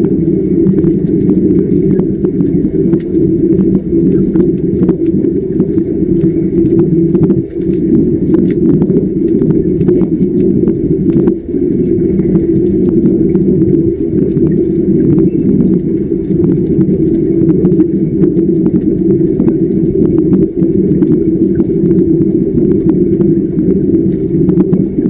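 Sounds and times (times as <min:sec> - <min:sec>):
crackling clicks of welding arc: 0:00.0 - 0:25.0
gas bubbling underwater rumble: 0:00.0 - 0:25.0.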